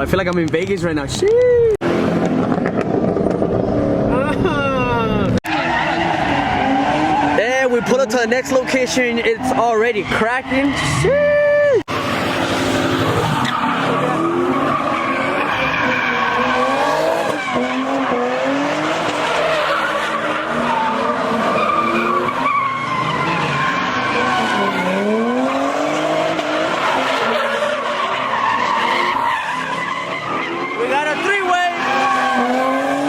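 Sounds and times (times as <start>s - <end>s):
car engines revving: 0.0s - 33.0s
tyres squealing: 12.9s - 33.0s.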